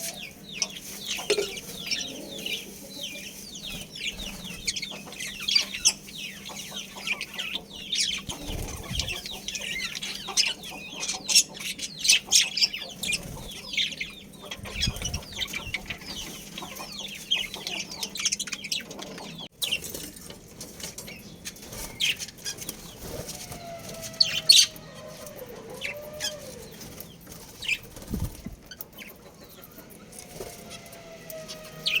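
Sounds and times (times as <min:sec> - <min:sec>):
small birds chattering: 0:00.0 - 0:32.0
wing flutters: 0:08.3 - 0:09.3, 0:26.3 - 0:28.8.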